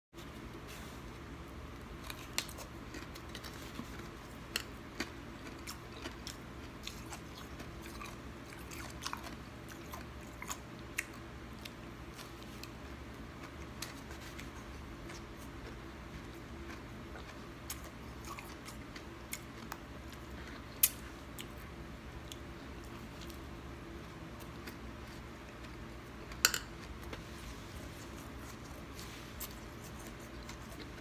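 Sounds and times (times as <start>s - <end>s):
chewing crunches and clicks: 2.0s - 21.6s, 28.0s - 31.0s.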